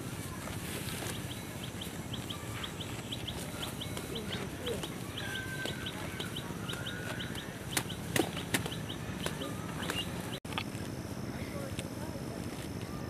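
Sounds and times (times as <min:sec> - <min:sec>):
birds chirping: 0:00.0 - 0:10.4
long held bird call: 0:01.2 - 0:10.4.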